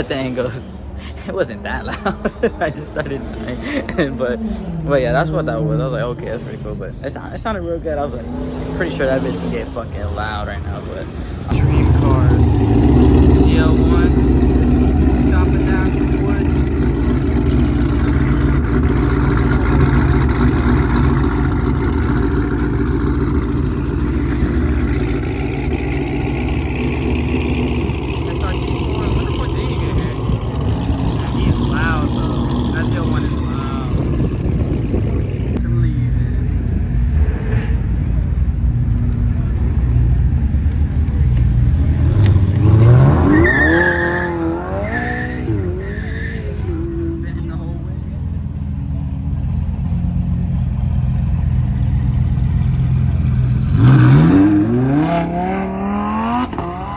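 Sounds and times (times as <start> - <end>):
car engine idling lumpily: 0.0 - 37.2, 37.8 - 43.8, 45.0 - 56.7
high squeal: 43.0 - 47.0.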